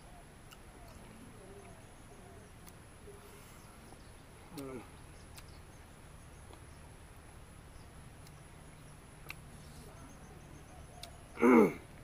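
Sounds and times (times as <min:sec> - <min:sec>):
mouth clicks from chewing: 0:04.5 - 0:05.6, 0:09.2 - 0:09.5, 0:11.0 - 0:11.2.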